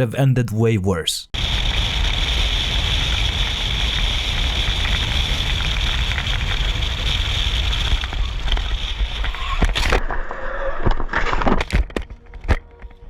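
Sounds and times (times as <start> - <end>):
motorcycle road rumble: 1.4 - 9.4.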